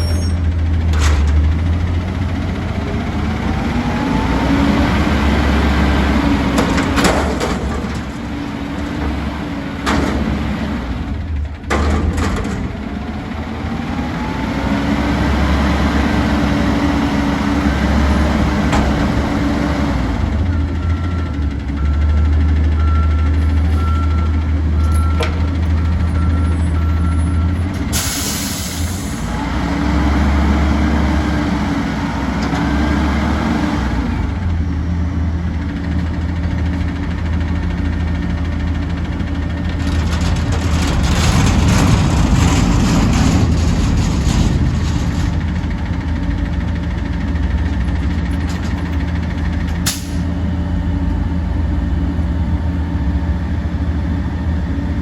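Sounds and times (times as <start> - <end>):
reversing beeps: 0.0 - 0.4, 20.8 - 27.6
diesel truck engine running: 0.0 - 55.0
air brake hiss: 28.0 - 29.3.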